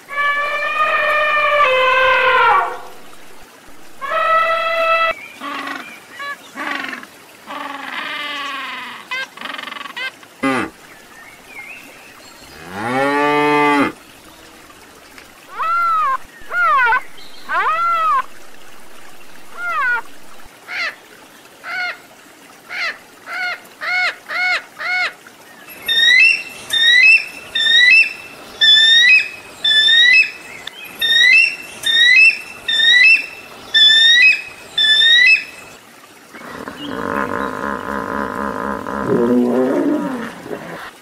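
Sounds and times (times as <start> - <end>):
deep loud animal call: 0.1 - 5.2, 36.4 - 40.9
bird-like call: 15.5 - 18.4
short arched animal calls: 15.5 - 18.4.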